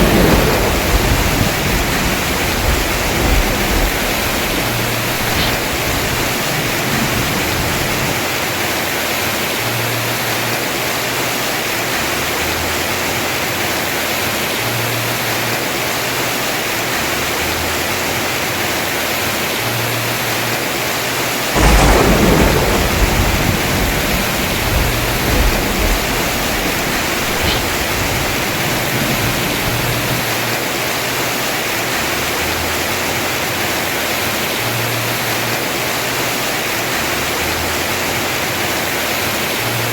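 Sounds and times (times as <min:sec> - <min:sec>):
thunder clap rumbling: 0:00.0 - 0:09.2, 0:21.6 - 0:30.7
heavy rain on a roof: 0:00.0 - 0:39.9.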